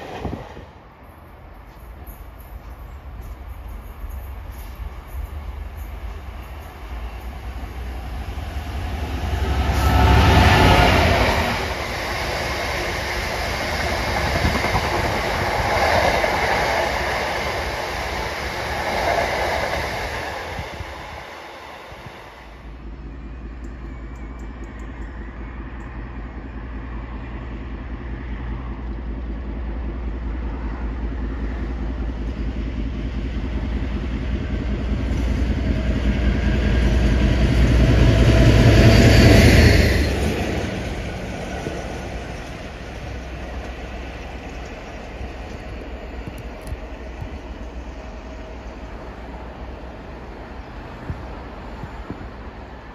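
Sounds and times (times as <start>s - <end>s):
diesel locomotive engine: 0.0s - 52.9s
freight train wheels clattering: 1.6s - 22.2s.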